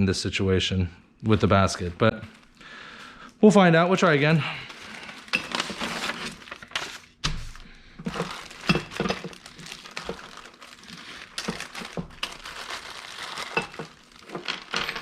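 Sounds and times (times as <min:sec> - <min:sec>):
packaging rustling: 0:04.5 - 0:15.0.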